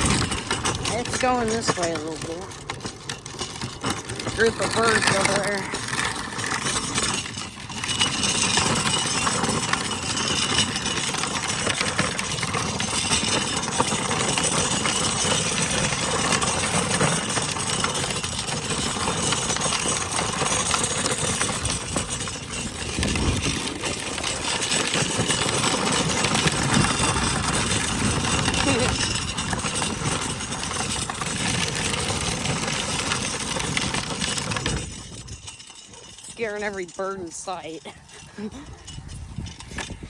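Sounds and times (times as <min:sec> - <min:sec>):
ride noise: 0:00.0 - 0:40.0
trike engine running: 0:00.0 - 0:40.0.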